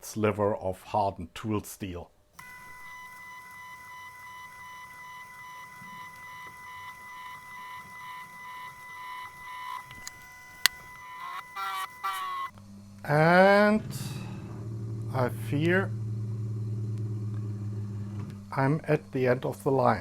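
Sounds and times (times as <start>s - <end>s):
drill cutting into aluminium: 2.4s - 12.5s
milling machine spindle whine: 2.4s - 12.5s
sharp click: 2.4s - 12.5s.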